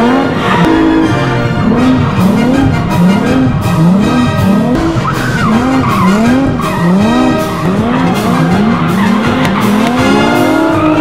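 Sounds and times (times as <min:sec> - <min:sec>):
car engine revving: 0:00.0 - 0:11.0
tyres skidding: 0:00.0 - 0:11.0.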